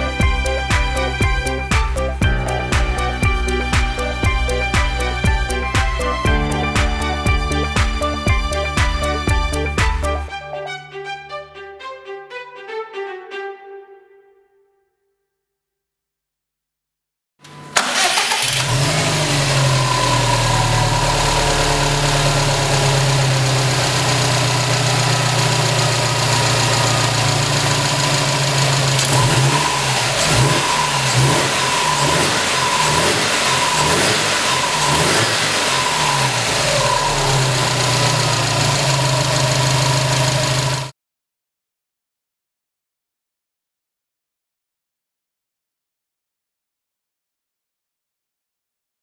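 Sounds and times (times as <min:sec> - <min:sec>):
car engine idling and revving: 0:17.8 - 0:40.9.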